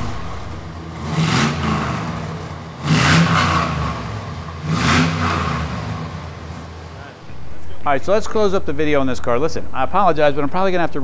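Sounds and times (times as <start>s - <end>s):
car engine idling and revving: 0.0s - 7.8s.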